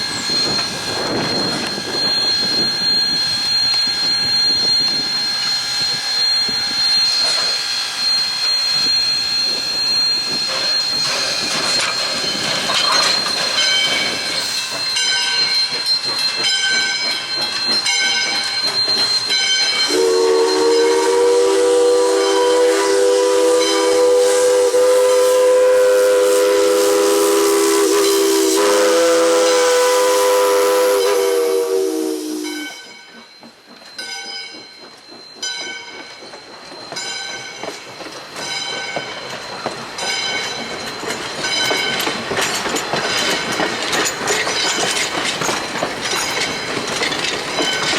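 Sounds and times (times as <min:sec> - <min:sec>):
chime steam whistle: 0:00.0 - 0:45.0
steam hissing: 0:00.0 - 0:47.9
steam locomotive running: 0:00.0 - 0:47.9
wheels clicking over rail joints: 0:33.0 - 0:47.9.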